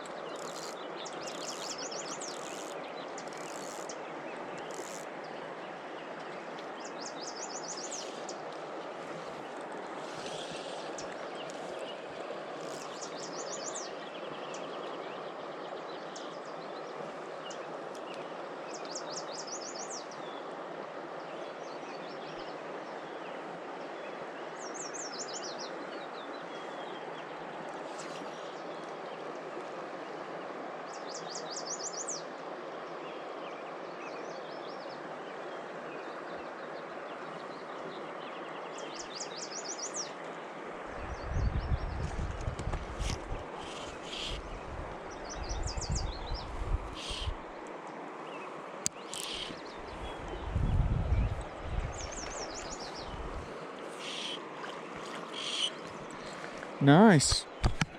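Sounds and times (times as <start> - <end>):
river water rushing: 0.0 - 14.8, 46.7 - 50.2, 52.1 - 57.9
songbird singing: 0.0 - 20.4, 30.9 - 32.3, 33.0 - 42.2, 43.0 - 57.9.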